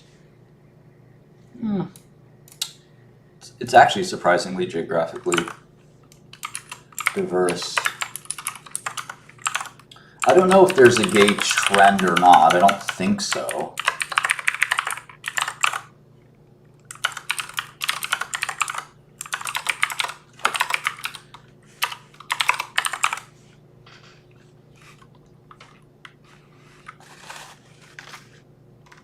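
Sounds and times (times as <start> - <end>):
typing on keyboard: 5.2 - 5.6, 6.3 - 15.9, 16.9 - 23.3.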